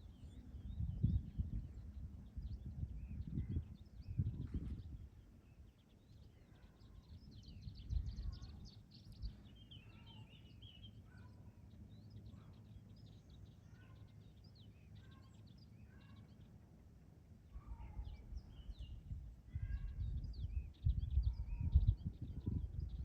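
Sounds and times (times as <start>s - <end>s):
wind rumble: 0.0s - 5.4s, 17.6s - 23.0s
birds chirping: 0.0s - 23.0s.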